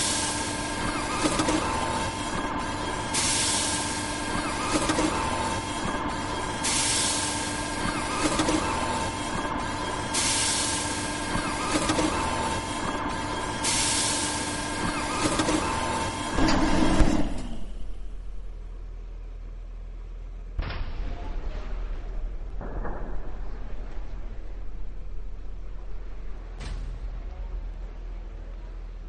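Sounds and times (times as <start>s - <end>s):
machinery humming: 0.0s - 29.0s
hiss of air or steam: 3.1s - 4.6s, 6.6s - 7.7s, 10.1s - 11.7s, 13.6s - 15.0s.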